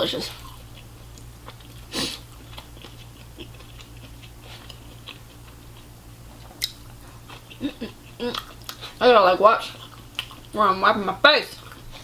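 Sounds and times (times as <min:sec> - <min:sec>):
wet chewing mouth clicks: 0:06.6 - 0:09.0, 0:09.8 - 0:10.6.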